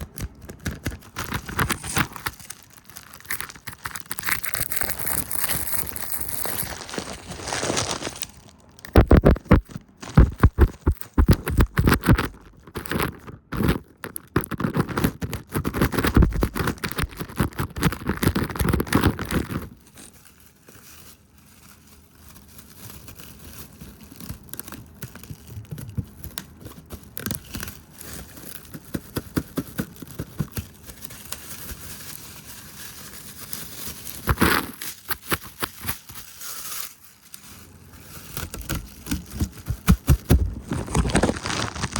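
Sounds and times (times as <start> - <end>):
rubbing and brushing: 27.4 - 41.9.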